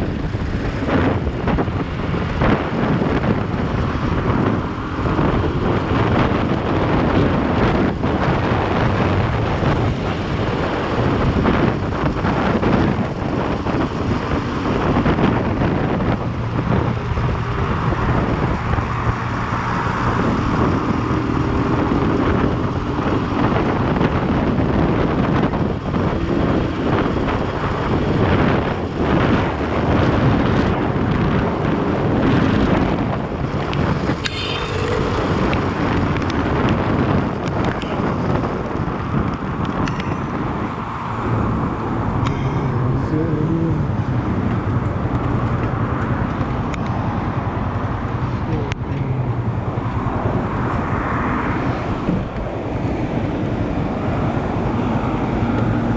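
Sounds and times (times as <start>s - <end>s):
road noise: 0.0s - 55.9s
wind buffeting on microphone: 0.0s - 55.9s
motorcycle engine: 32.5s - 46.7s.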